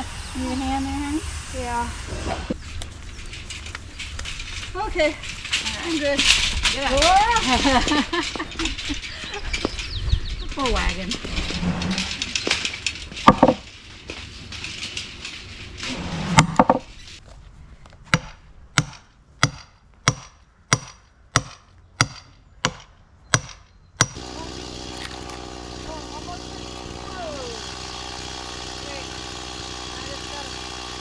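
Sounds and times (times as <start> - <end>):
loud knocks: 12.5 - 14.3
sharp evenly spaced taps: 18.1 - 24.2.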